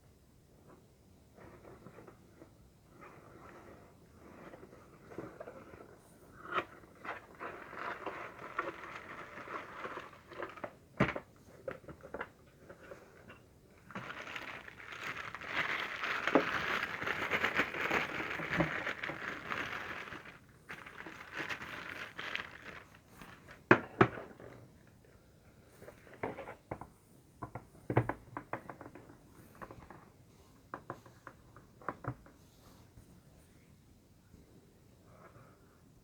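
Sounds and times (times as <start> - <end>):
plastic packaging crinkling: 7.0 - 10.8, 13.8 - 23.7.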